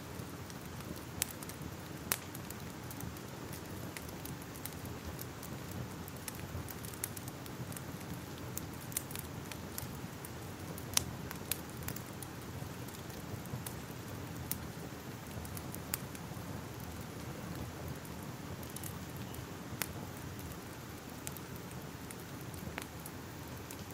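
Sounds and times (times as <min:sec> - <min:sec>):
fire crackling: 0:00.0 - 0:23.9.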